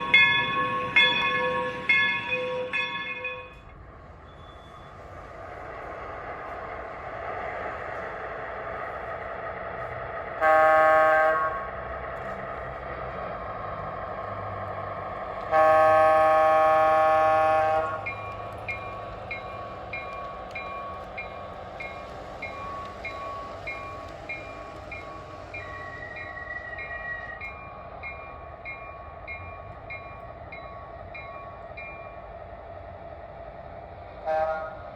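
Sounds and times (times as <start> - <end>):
locomotive bell ringing: 0.0 - 5.1, 18.0 - 32.3
diesel engine rumble: 3.7 - 34.2
train horn blasts: 10.4 - 11.7, 15.5 - 18.2, 34.2 - 34.8.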